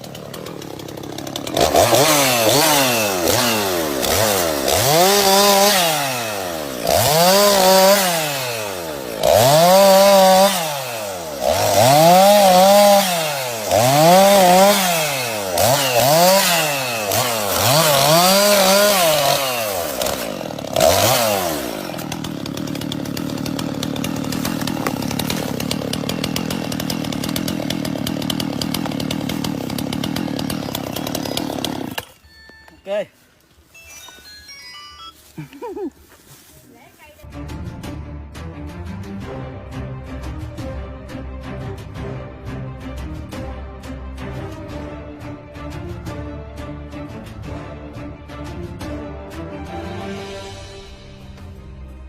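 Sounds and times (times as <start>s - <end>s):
chainsaw cutting wood: 0.0s - 32.5s.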